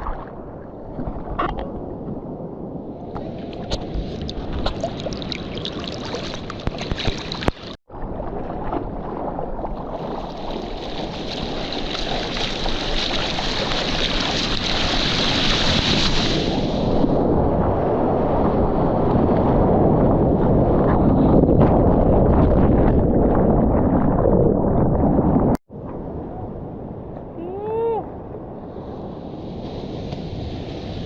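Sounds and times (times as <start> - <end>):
wind on microphone: 0.0 - 31.0
sea water splashing: 3.1 - 17.2.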